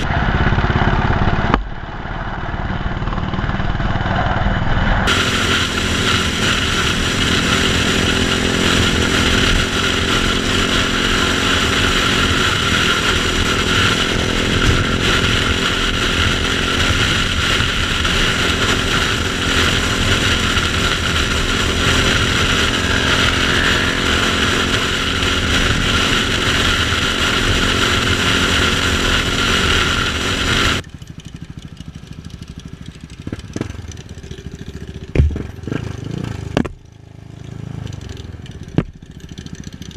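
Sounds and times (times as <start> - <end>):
motorcycle engine running: 0.0 - 39.9
knocks: 35.1 - 35.6.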